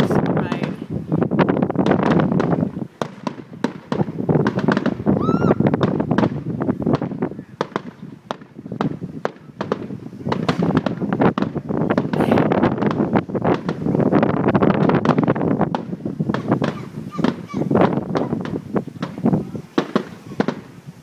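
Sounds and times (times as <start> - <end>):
fireworks bangs and crackles: 0.0 - 21.0
rising firework whistle: 3.3 - 6.5.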